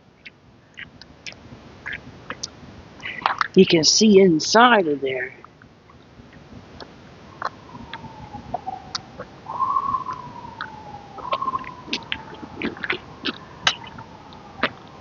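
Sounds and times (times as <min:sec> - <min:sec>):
birds chirping: 0:00.2 - 0:15.0
bird whistles gliding down: 0:07.2 - 0:15.0.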